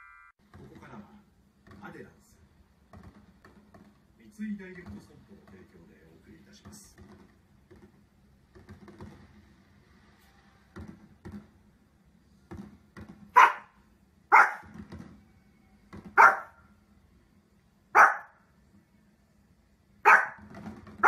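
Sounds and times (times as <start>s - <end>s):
small dog barking: 13.3s - 14.7s, 16.2s - 16.6s, 17.9s - 18.4s, 20.0s - 20.5s.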